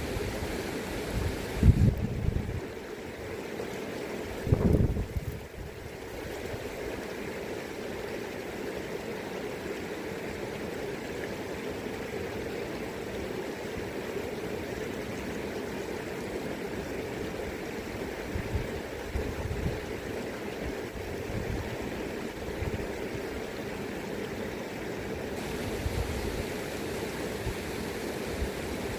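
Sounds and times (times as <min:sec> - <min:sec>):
river water rushing and gurgling: 0:00.0 - 0:28.9
wind buffeting microphone: 0:01.2 - 0:02.6, 0:04.4 - 0:05.4, 0:25.4 - 0:26.6.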